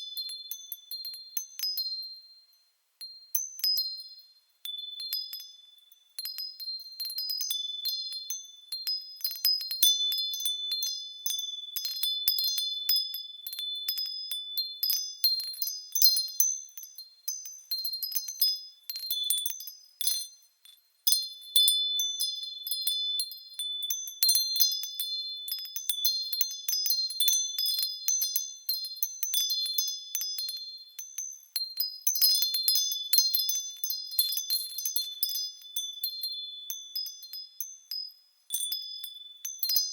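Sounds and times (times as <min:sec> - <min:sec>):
wind chimes ringing: 0:13.5 - 0:39.9.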